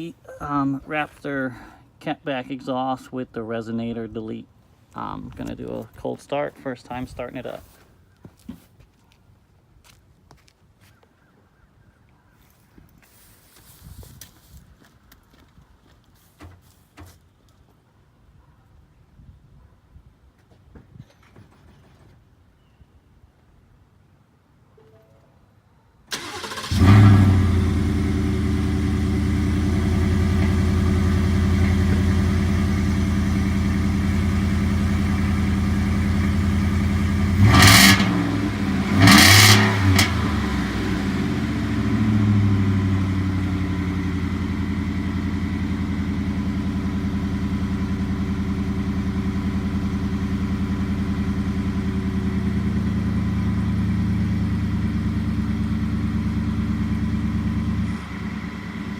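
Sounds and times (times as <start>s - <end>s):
engine cranking: 26.1s - 27.4s
vee eight engine idling and revving: 26.2s - 58.9s.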